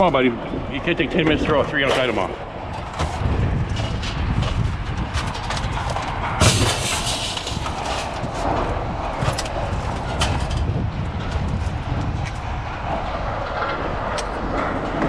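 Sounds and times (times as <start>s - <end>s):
low engine rumble: 0.0s - 15.0s
scrap metal clattering onto pile: 5.2s - 9.4s.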